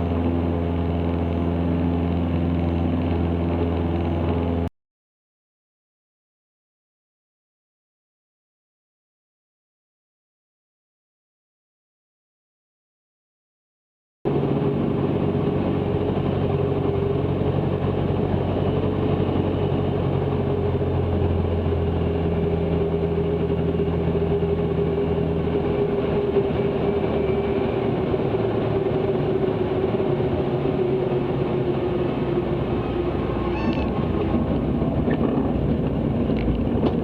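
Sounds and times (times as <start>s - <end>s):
propeller plane engine droning: 0.0s - 4.7s, 14.3s - 37.0s.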